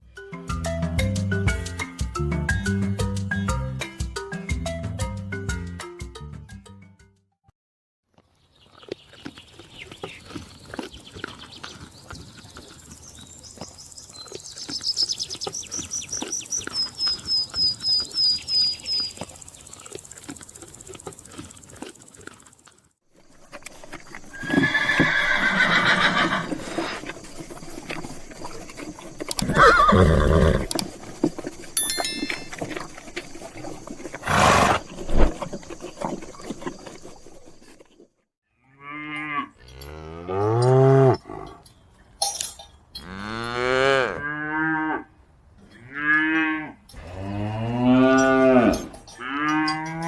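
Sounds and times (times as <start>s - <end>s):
horse whinnying: 24.2s - 27.2s, 29.3s - 31.0s, 34.1s - 35.5s.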